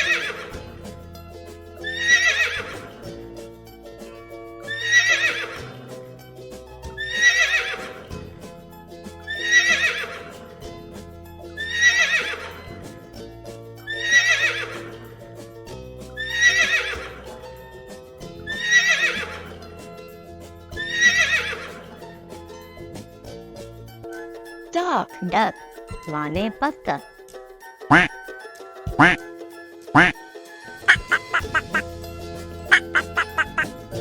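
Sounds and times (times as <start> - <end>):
background music with held notes: 0.0 - 34.0
horse neighing: 4.7 - 5.6, 18.5 - 19.5, 27.9 - 28.1, 30.0 - 30.2, 30.9 - 31.8, 32.7 - 33.8.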